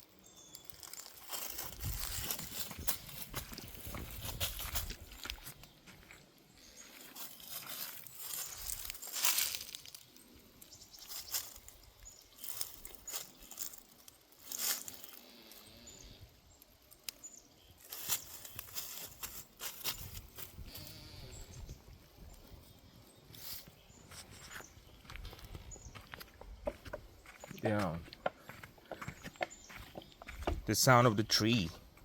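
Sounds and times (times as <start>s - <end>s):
dry plants crunching and crackling: 0.0s - 30.7s.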